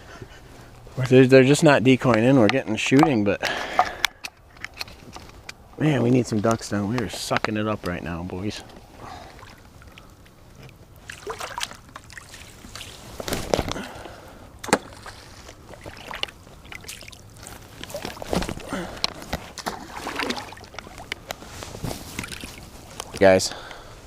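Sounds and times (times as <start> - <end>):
rustling: 4.6 - 14.1, 14.8 - 23.4
water sloshing and splashing: 8.5 - 23.7.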